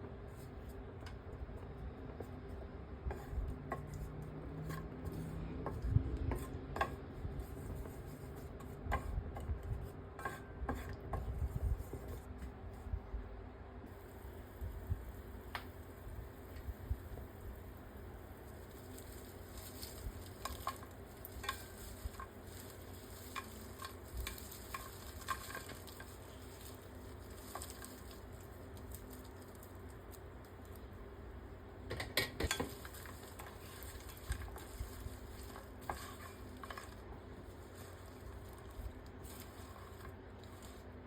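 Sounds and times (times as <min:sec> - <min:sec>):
food sizzling in a pan: 0:13.9 - 0:30.8, 0:32.4 - 0:41.0.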